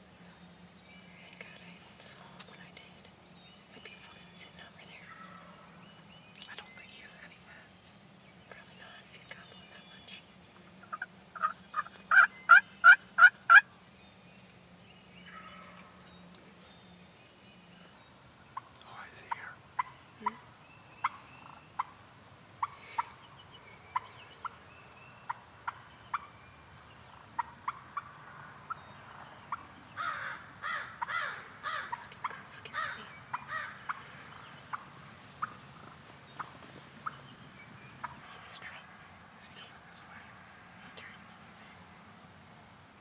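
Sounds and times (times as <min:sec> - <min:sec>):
turkey gobbling: 0:10.8 - 0:13.7, 0:19.8 - 0:22.0, 0:22.6 - 0:23.2, 0:27.1 - 0:28.1, 0:32.7 - 0:37.2.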